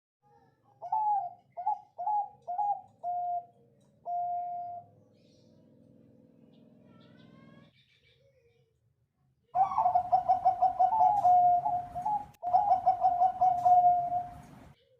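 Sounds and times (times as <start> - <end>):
dove cooing: 0.8 - 5.0, 9.6 - 14.7.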